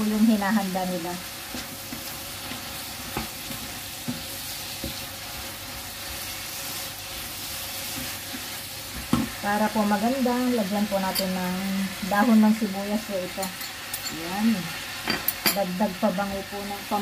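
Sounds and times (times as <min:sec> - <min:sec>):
food sizzling in a frying pan: 0:00.0 - 0:17.0
wooden spatula knocking on pan: 0:08.9 - 0:09.4.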